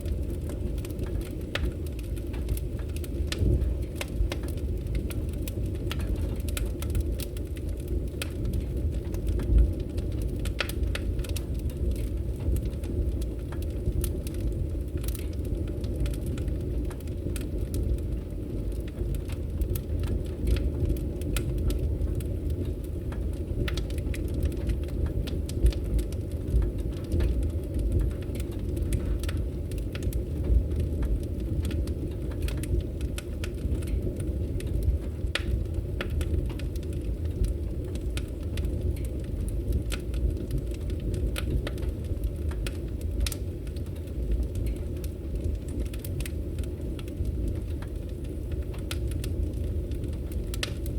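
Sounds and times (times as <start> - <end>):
low rumble of flames: 0.0 - 50.9
wood fire pops and snaps: 0.0 - 50.9.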